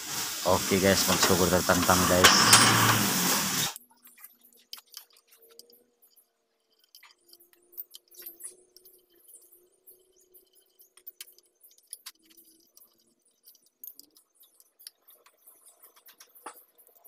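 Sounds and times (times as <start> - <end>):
wrench clicking and clinking: 2.2 - 3.0.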